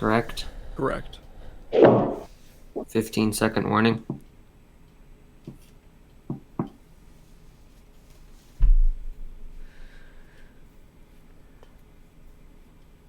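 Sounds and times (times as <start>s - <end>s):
dull heavy thump: 1.8s - 2.3s.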